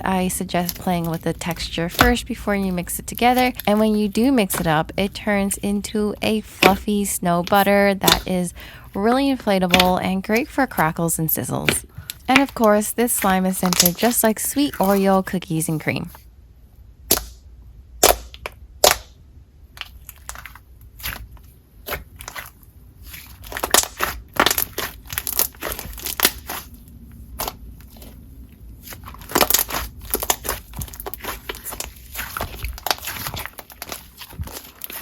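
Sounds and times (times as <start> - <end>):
slime clicking and crackling: 0.2 - 5.7, 9.7 - 10.5, 11.6 - 15.0, 19.8 - 35.0.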